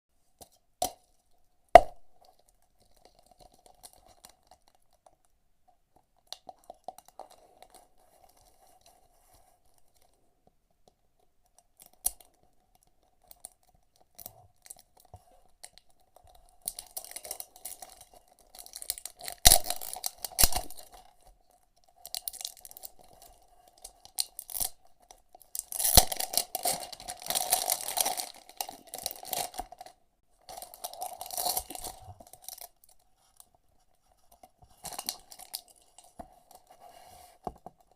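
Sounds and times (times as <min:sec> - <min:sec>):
packaging crinkling and tearing: 0:15.6 - 0:21.2, 0:22.0 - 0:33.0, 0:34.8 - 0:36.7.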